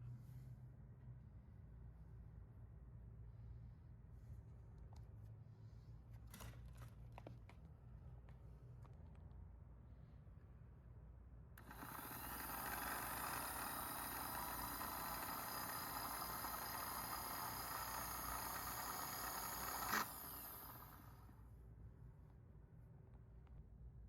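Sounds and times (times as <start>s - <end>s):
lathe motor whining: 11.6s - 21.3s.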